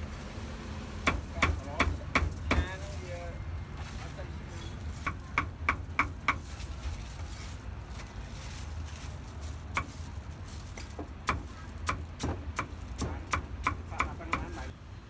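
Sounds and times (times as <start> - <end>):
cleaver chopping on wooden board: 1.0 - 2.7, 11.0 - 14.6.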